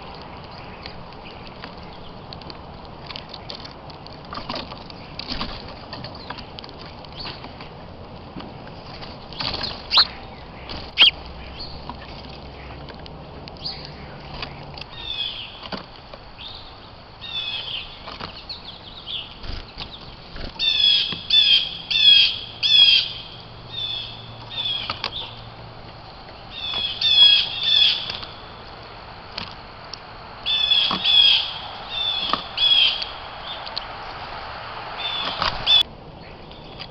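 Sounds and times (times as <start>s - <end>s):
small birds chirping: 9.2s - 12.8s, 13.6s - 36.9s
wing flutters: 9.4s - 11.2s, 26.7s - 35.8s.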